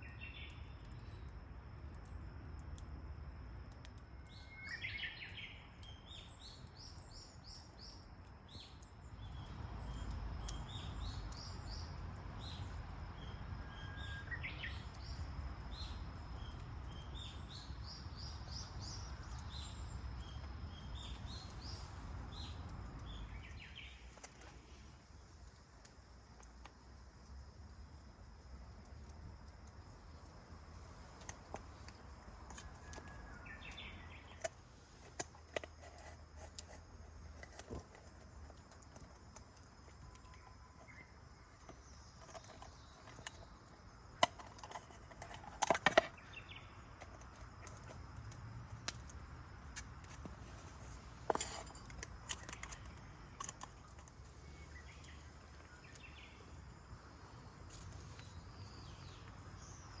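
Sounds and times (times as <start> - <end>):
faint bird chirps: 4.2 - 24.8.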